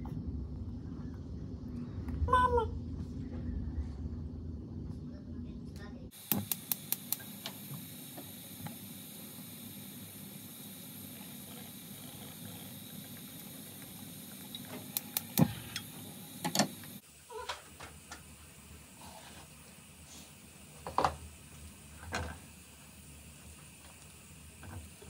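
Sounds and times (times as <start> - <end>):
steady hiss: 6.1 - 25.0.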